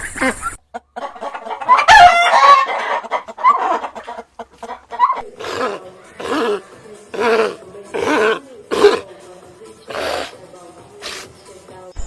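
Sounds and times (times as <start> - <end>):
animal calls: 4.7 - 9.1, 9.9 - 10.4.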